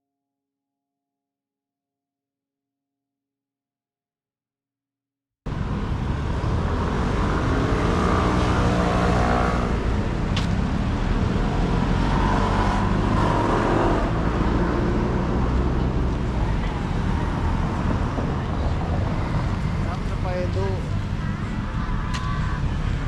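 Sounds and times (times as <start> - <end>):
traffic rumble: 5.5 - 23.0.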